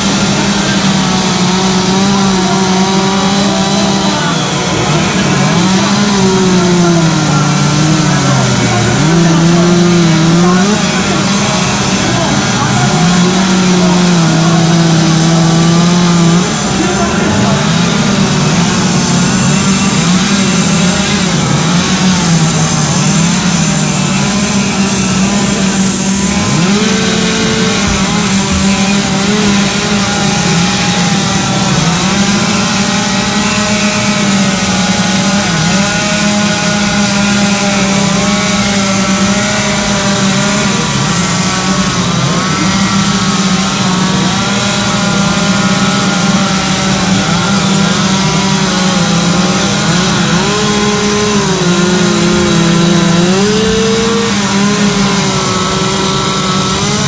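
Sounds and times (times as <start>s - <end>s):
chainsaw carving wood: 0.0s - 57.0s.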